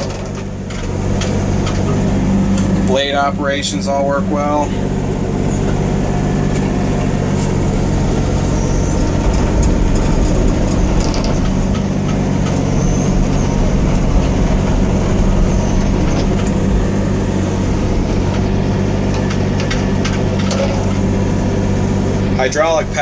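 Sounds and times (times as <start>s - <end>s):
diesel engine running: 0.0s - 23.0s
faint high whines: 15.2s - 18.7s.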